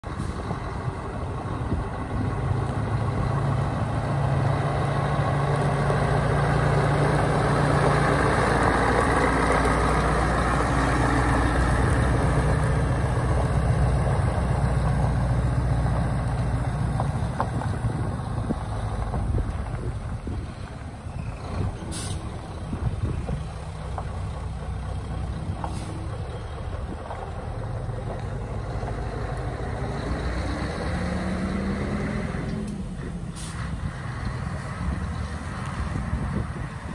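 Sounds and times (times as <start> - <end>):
truck diesel engine running: 0.0 - 36.9.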